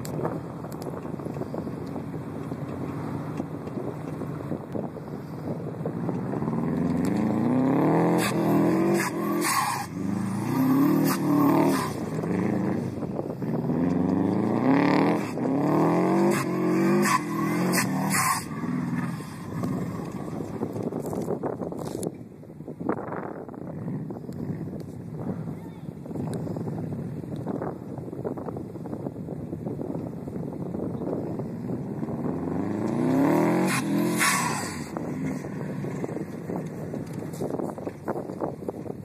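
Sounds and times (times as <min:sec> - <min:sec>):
car engine revving hard: 0:06.2 - 0:20.7, 0:31.9 - 0:36.2.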